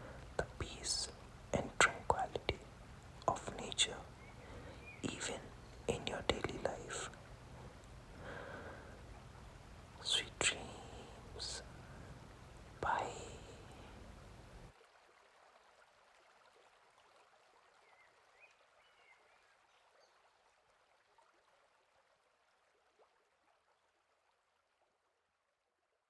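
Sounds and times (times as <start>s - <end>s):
forest stream flowing: 0.0s - 23.6s
faint high chirps: 3.8s - 5.9s.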